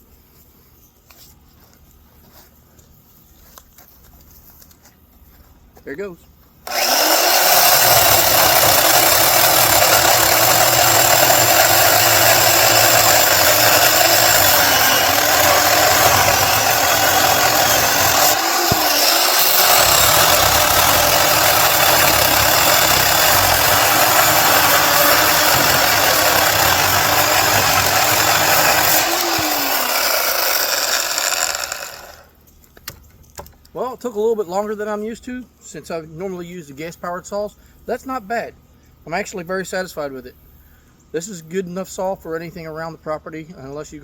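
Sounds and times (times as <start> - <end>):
electric chainsaw cutting log: 6.6 - 32.3.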